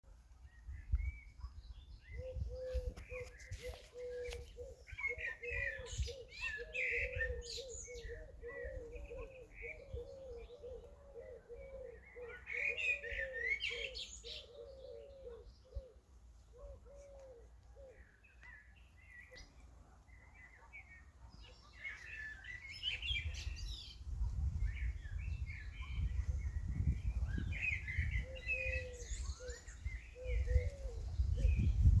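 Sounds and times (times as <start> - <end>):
small birds chirping: 0.1 - 32.0
dove cooing: 2.1 - 18.2, 27.4 - 32.0.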